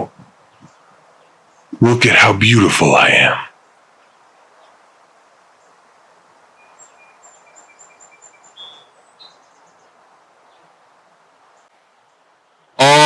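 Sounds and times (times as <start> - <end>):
faint outdoor ambience: 0.0 - 13.0
small bird chirping: 6.6 - 9.9.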